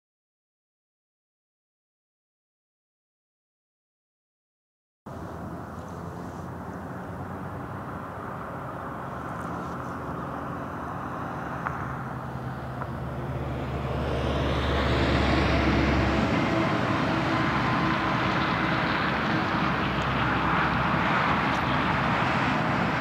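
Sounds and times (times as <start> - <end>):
locomotive engine drone: 5.1 - 23.0
rail and wheel noise: 5.1 - 23.0.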